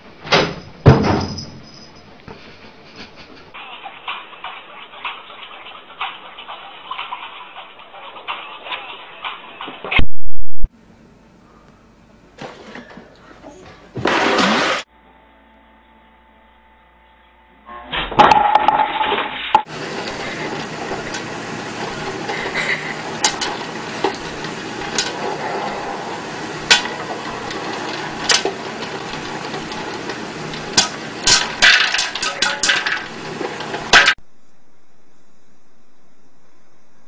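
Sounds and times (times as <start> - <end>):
popcorn popping: 19.6 - 34.2
popcorn sizzling hiss: 19.7 - 34.2.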